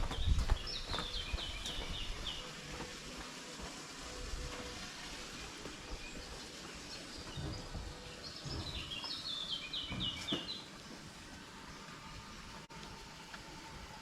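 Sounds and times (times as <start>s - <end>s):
songbird singing: 0.0s - 3.0s, 5.2s - 12.6s
outdoor background noise: 0.0s - 14.0s.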